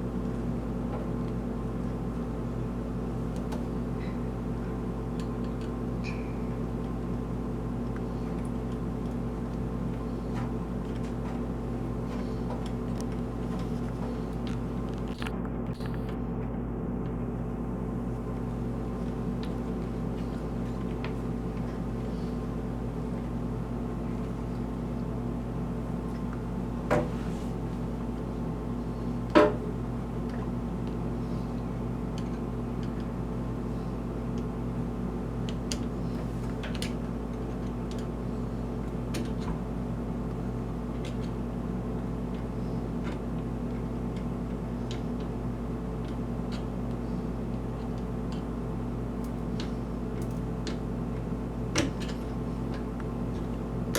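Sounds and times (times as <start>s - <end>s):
steady machine hum: 0.0s - 53.9s.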